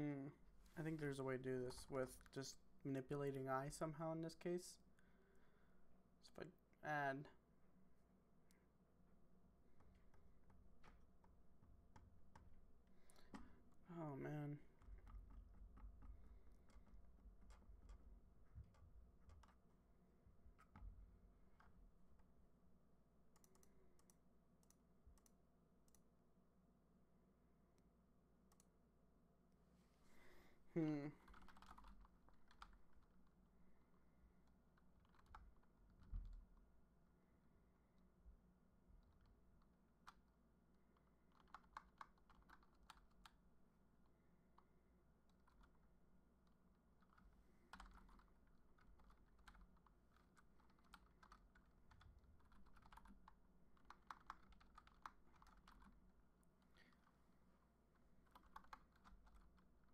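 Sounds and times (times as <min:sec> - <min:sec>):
typing on computer keyboard: 0:31.3 - 0:33.0, 0:35.0 - 0:35.7, 0:41.3 - 0:43.4, 0:47.0 - 0:56.0, 0:58.2 - 0:59.7.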